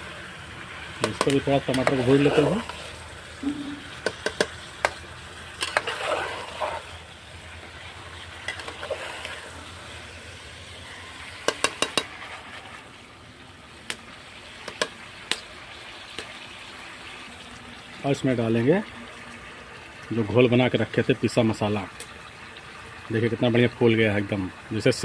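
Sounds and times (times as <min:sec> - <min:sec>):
food sizzling in a pan: 0:00.0 - 0:18.0
utensil clinking and scraping pan: 0:05.6 - 0:06.9, 0:08.4 - 0:09.4.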